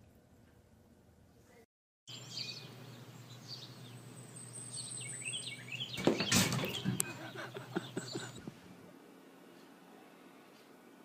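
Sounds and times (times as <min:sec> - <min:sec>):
steady low hum: 0:00.0 - 0:11.0
small birds chirping: 0:02.1 - 0:08.4.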